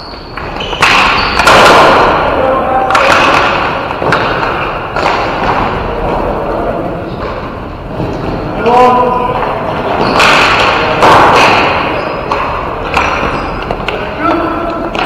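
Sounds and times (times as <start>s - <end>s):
ball hitting rink boards: 0.1s - 6.3s, 9.3s - 15.0s.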